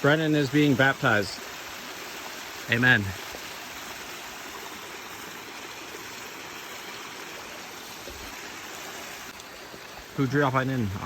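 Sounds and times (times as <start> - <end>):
stream rushing water: 0.0 - 11.0.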